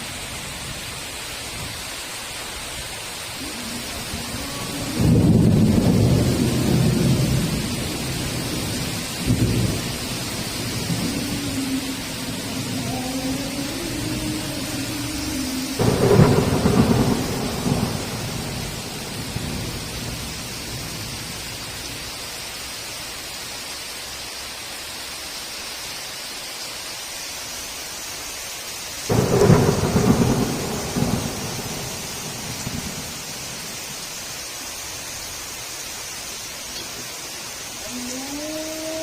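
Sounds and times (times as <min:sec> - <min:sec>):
heavy rain: 0:00.0 - 0:39.0
thunder rumbling: 0:03.4 - 0:21.6, 0:29.1 - 0:34.2.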